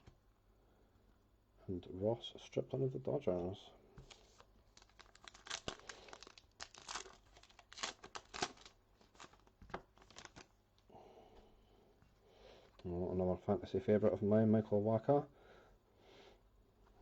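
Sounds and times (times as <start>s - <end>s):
wrapper tearing and crinkling: 4.0s - 10.5s.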